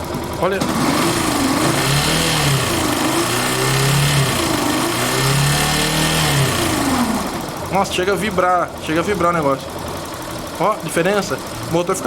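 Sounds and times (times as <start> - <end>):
motorcycle engine revving: 0.0 - 7.8
vibrating whir: 0.6 - 7.6.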